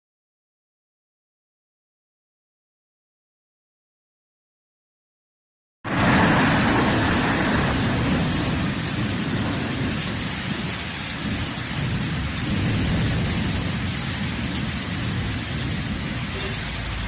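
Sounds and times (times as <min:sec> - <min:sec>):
heavy rain on plants: 0:05.9 - 0:17.0
low rumble: 0:05.9 - 0:17.0.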